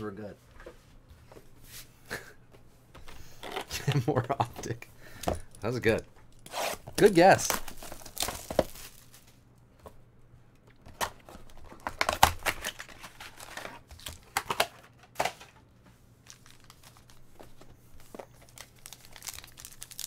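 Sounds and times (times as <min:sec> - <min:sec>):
card wrappers crinkling: 0:07.0 - 0:09.4, 0:10.9 - 0:14.7, 0:16.2 - 0:20.0.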